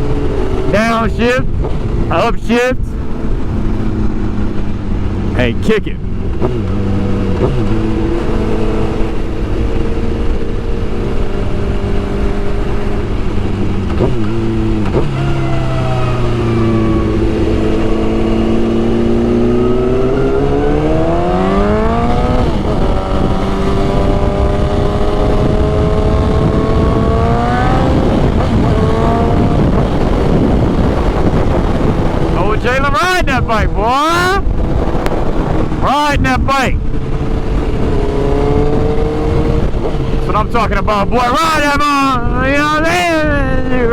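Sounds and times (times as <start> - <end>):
motorcycle engine accelerating: 0.0 - 43.9
wind noise: 0.0 - 43.9.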